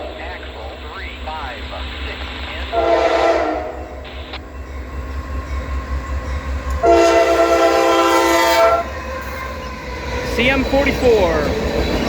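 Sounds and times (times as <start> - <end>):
train rumble: 0.0 - 12.0
locomotive horn blast: 2.7 - 4.3, 6.8 - 9.5.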